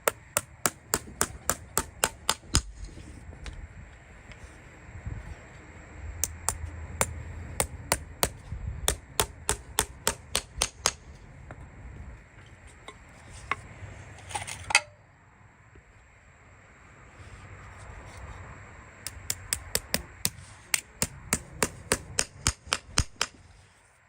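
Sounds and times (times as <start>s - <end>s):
hammer tapping: 0.0s - 2.7s, 6.2s - 11.0s, 19.1s - 23.4s.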